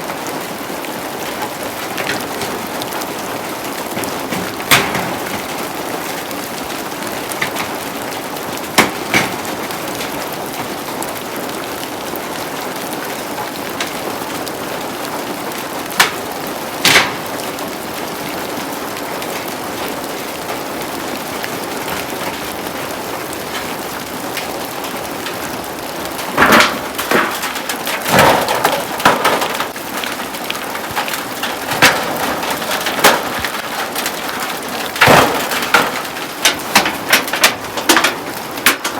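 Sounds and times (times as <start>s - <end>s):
heavy rain falling: 0.0s - 38.9s
knocks and wooden clatter: 0.0s - 38.9s
sharp knocks: 1.9s - 3.1s, 3.8s - 5.8s, 8.7s - 10.2s, 16.8s - 17.4s, 35.0s - 38.8s.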